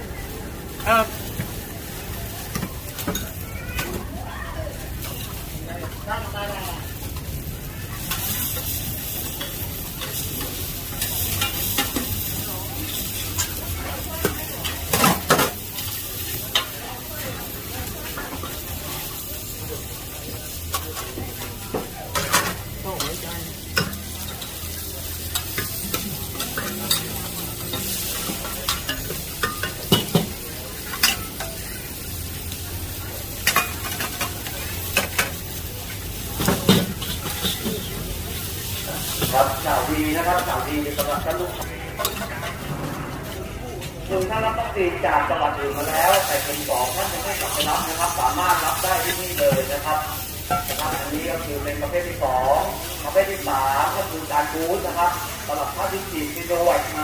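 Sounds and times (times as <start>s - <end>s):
food sizzling in a wok: 0.0s - 43.7s, 45.6s - 57.0s
metal utensil scraping pan: 22.1s - 31.4s, 45.8s - 51.2s.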